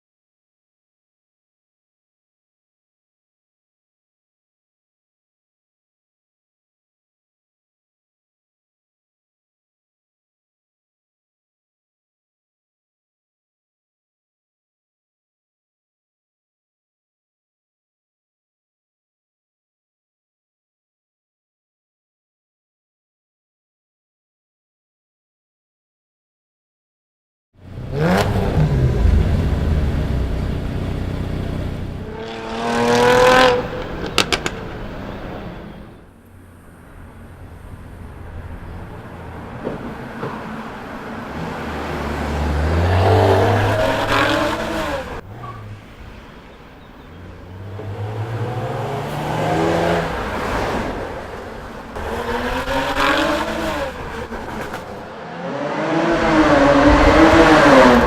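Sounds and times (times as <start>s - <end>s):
car engine revving hard: 27.7s - 35.5s, 41.4s - 45.7s, 47.5s - 51.4s, 52.0s - 58.0s.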